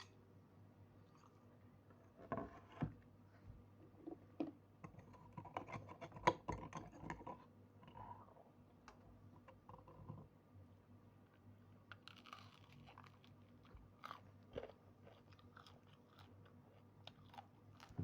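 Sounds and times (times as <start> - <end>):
crunchy chewing: 11.9 - 18.0.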